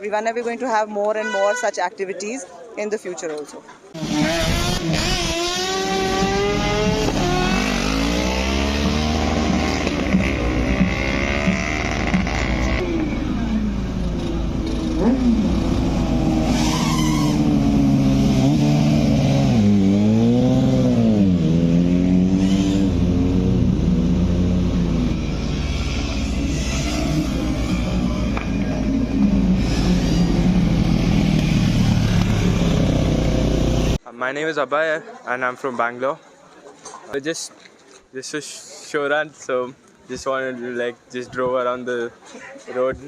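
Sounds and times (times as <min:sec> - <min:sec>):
race car engines accelerating: 0:04.0 - 0:34.0.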